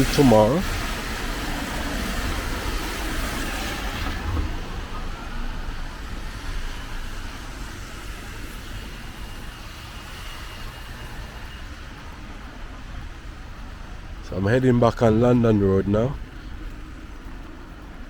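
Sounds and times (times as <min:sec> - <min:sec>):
low traffic rumble: 0:00.0 - 0:18.0
tyres hissing on wet road: 0:00.0 - 0:18.0.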